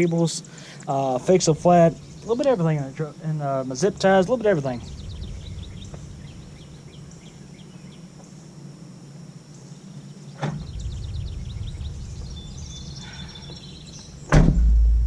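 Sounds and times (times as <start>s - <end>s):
birds chirping: 0.0s - 8.6s, 9.5s - 14.4s
steady low hum: 0.0s - 15.0s
low rumble: 4.8s - 6.8s, 10.6s - 13.0s, 13.8s - 15.0s
knock: 14.3s - 15.0s.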